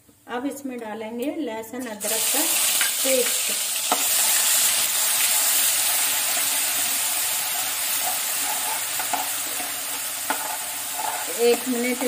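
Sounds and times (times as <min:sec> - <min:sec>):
paste sizzling in hot oil: 0:02.0 - 0:12.0
metal spoon stirring: 0:07.4 - 0:12.0.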